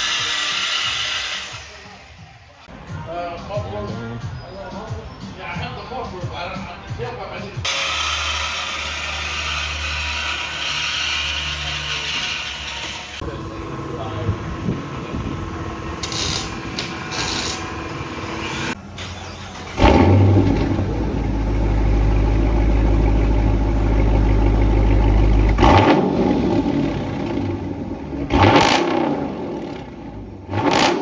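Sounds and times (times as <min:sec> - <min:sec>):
car engine starting: 0:07.6 - 0:31.0
engine revving: 0:07.7 - 0:31.0
steady machine hum: 0:13.2 - 0:18.7
deep engine idle: 0:13.2 - 0:28.4.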